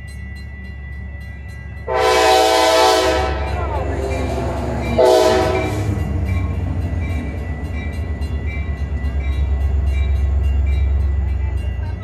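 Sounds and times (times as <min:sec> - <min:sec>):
crossing bell dinging: 0:00.0 - 0:12.0
train low rumble: 0:00.0 - 0:12.0
train horn: 0:01.9 - 0:04.4, 0:05.0 - 0:06.0.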